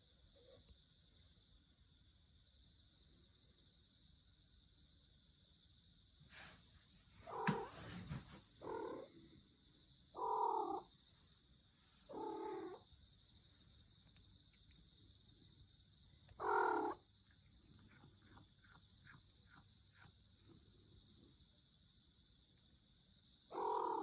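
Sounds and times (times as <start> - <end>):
cat crying: 16.4 - 17.0.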